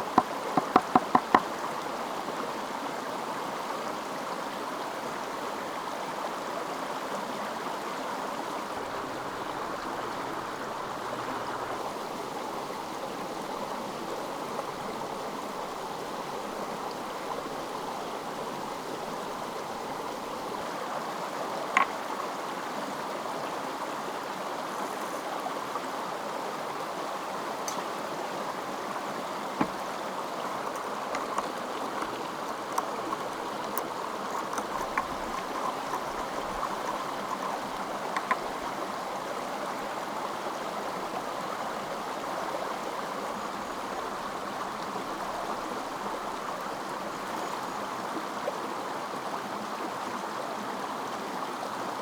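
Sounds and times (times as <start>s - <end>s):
stream flowing: 0.0s - 52.0s
quick even knocks: 0.6s - 1.4s.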